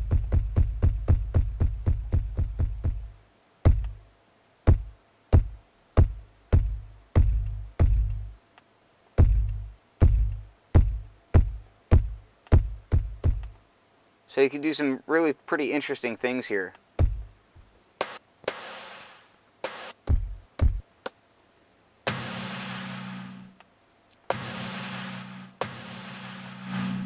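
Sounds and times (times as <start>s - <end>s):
sharp drum hits with booming low end: 9.2s - 13.4s, 20.1s - 20.8s.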